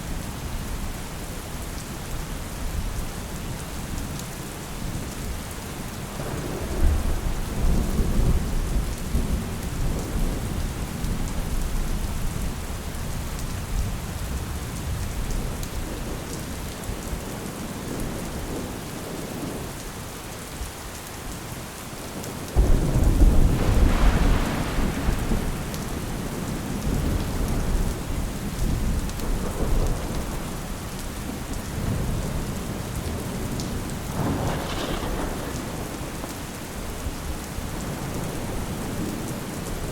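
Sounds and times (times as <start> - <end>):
steady rain: 0.0 - 39.9
thunder rumbling: 22.6 - 39.9.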